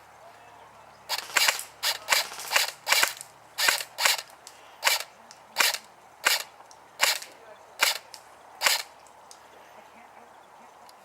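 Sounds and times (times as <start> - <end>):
airsoft gun shots: 1.1 - 5.0, 8.6 - 8.9.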